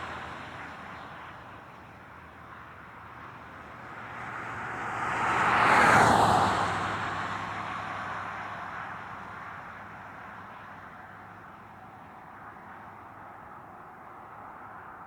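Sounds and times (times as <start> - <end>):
road vehicle passing by: 2.6 - 11.0.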